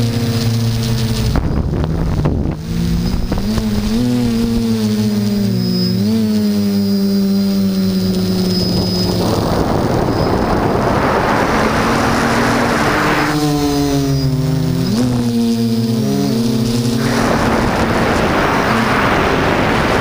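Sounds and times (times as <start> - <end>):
quadcopter propellers droning: 0.0 - 20.0
wind noise on microphone: 0.0 - 20.0.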